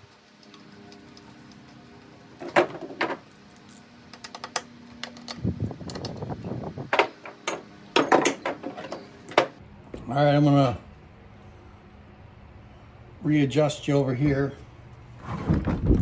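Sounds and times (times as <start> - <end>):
tools and parts clicking: 2.4 - 6.3, 7.0 - 9.6.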